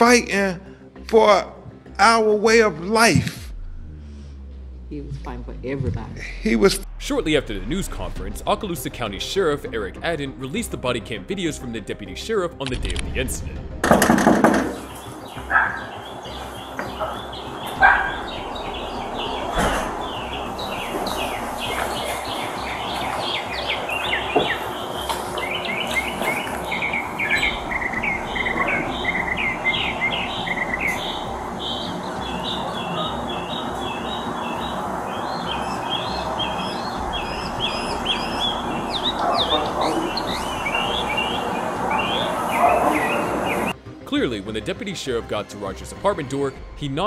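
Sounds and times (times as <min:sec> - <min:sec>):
steady outdoor hiss: 0:06.3 - 0:47.0
songbirds chirping and twittering: 0:14.0 - 0:43.8.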